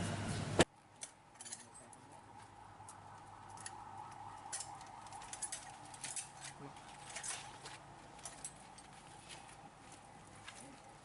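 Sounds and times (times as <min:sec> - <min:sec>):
metal parts clicking: 0:04.5 - 0:07.5.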